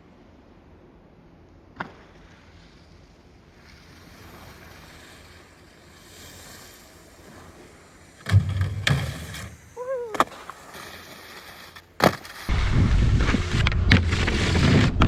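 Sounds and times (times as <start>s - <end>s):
skis running over snow: 3.6s - 15.0s
loud thump: 8.2s - 9.6s
wind on microphone: 12.5s - 15.0s.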